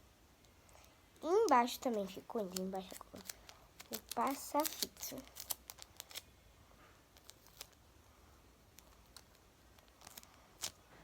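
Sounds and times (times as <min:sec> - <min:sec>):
paper and tape clicks: 0:01.2 - 0:06.3, 0:08.7 - 0:11.0.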